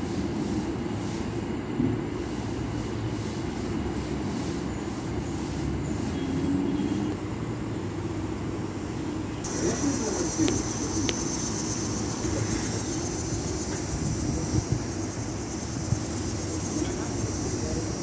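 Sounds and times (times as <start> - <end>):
distant electric train rumble: 0.0 - 18.0
high insect buzz: 2.3 - 7.2, 9.4 - 18.0.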